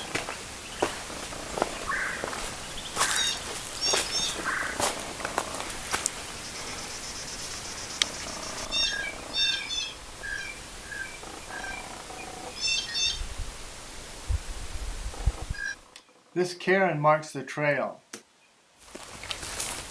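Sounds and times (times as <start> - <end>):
wild birds calling: 0.0 - 13.8, 15.0 - 16.4
sharp clicks: 7.9 - 9.1.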